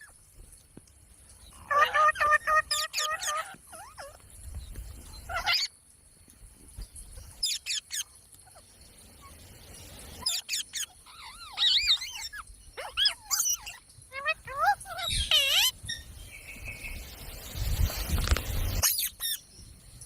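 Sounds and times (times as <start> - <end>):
parakeet warbling: 1.7 - 4.1, 10.2 - 15.7
parakeet chirping and whistling: 10.2 - 13.8, 14.6 - 16.1, 18.8 - 19.4.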